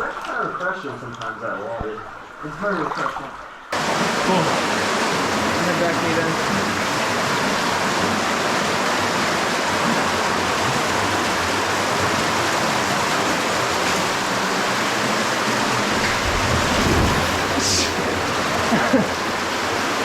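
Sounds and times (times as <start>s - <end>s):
cave stream rushing water: 0.0s - 20.0s
low rumble: 15.8s - 18.6s.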